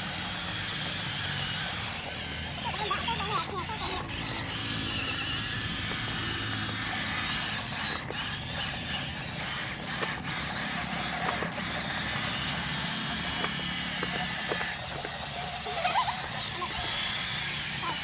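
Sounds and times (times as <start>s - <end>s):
toy truck motor whirring: 0.0s - 18.0s.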